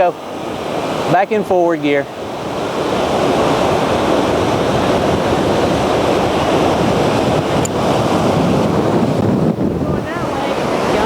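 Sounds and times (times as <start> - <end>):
surf breaking on beach: 0.0 - 11.0
wind buffeting microphone: 0.0 - 11.0.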